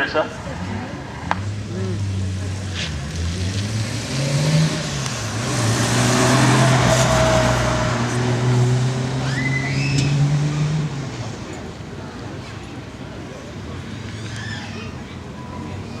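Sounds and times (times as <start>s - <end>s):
car engine driving past: 0.5s - 11.6s.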